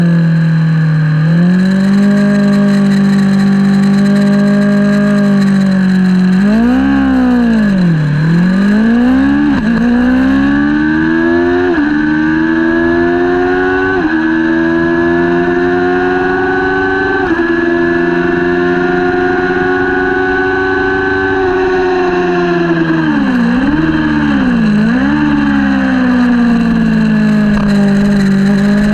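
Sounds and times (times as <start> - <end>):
motorcycle engine revving: 0.0 - 28.9
motorcycle gear upshifts: 1.3 - 10.6, 22.8 - 28.9.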